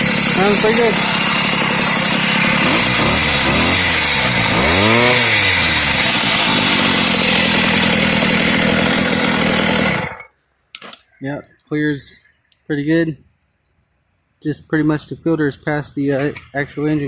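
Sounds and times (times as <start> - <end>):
small two-stroke engine revving: 0.0 - 10.3.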